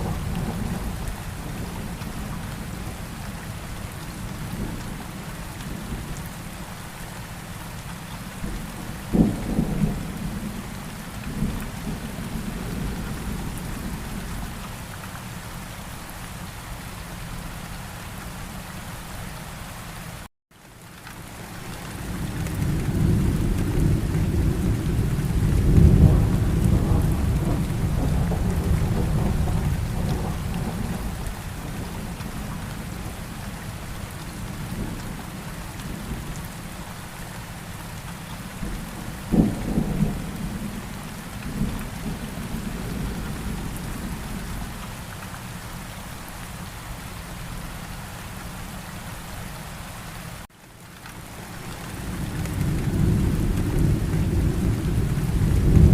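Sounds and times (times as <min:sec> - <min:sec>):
thunder rumbling: 0:00.0 - 0:03.0, 0:22.1 - 0:33.2, 0:38.5 - 0:44.8, 0:51.7 - 0:55.9
steady rain: 0:00.0 - 0:55.9
thunder crack: 0:52.4 - 0:55.9.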